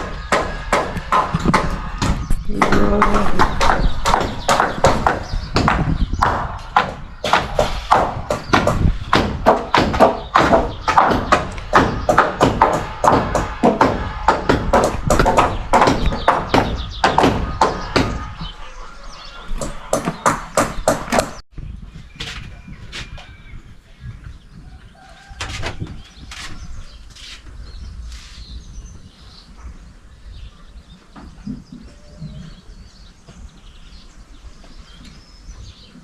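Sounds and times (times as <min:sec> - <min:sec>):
hammering on wooden timbers: 0:00.0 - 0:21.4
faint bird chirps: 0:15.6 - 0:21.0.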